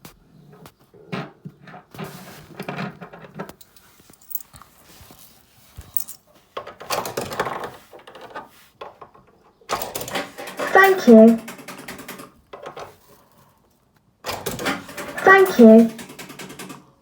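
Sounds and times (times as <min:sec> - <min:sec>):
clicks and rattles of handling: 0:01.2 - 0:04.8, 0:05.8 - 0:13.0, 0:14.3 - 0:17.0.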